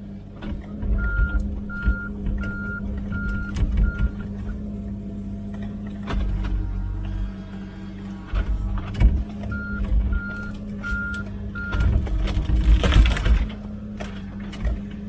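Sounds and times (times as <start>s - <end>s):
diesel engine running: 0.0s - 15.0s
rough noisy rumble: 0.0s - 15.0s
travel alarm beeping: 1.0s - 4.2s, 9.5s - 11.9s.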